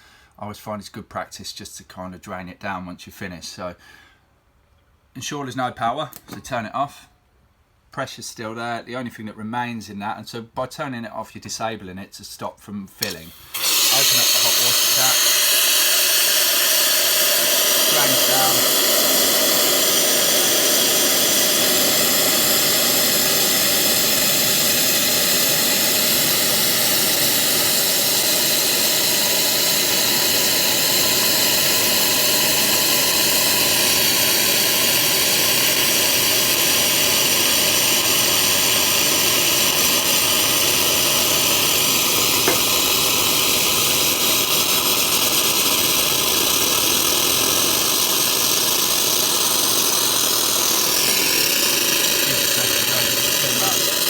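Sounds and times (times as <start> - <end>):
hot water and steam hissing: 13.0 - 54.0.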